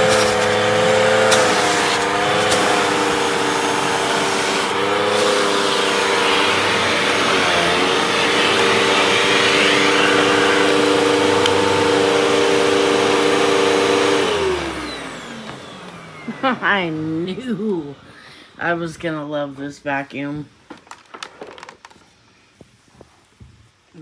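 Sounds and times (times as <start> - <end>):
vacuum cleaner motor running: 0.0 - 17.3.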